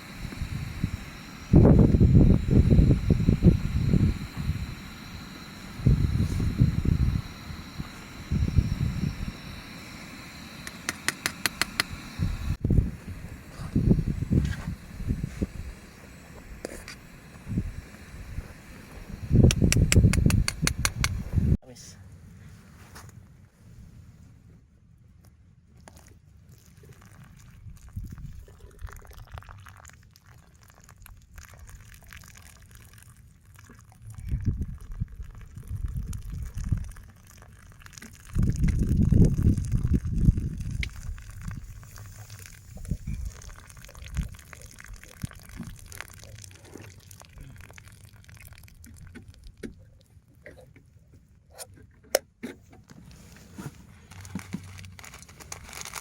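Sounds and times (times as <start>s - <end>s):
strong wind buffeting microphone: 0.2s - 4.8s, 5.7s - 9.4s, 12.0s - 16.6s, 17.4s - 21.6s, 34.2s - 37.0s, 38.3s - 42.0s, 42.7s - 44.4s.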